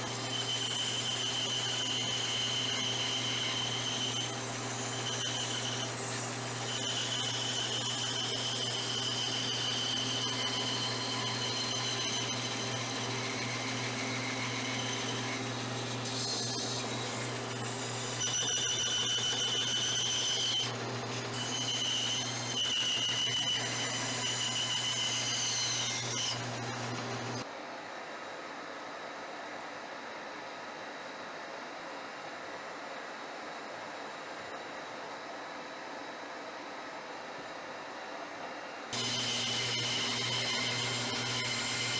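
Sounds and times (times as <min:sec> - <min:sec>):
band saw motor hum: 0:00.0 - 0:27.4, 0:39.0 - 0:41.9
falling squeals of saw: 0:00.0 - 0:27.4.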